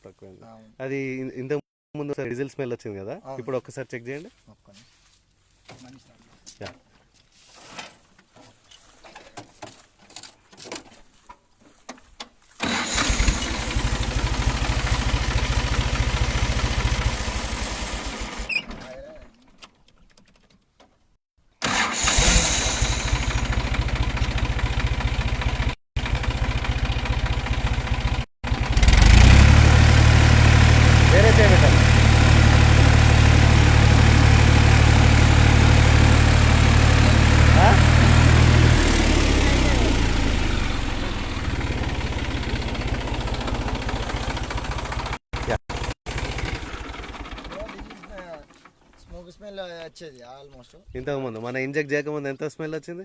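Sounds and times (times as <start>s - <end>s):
tractor diesel engine idling: 12.6s - 18.6s, 21.6s - 49.0s.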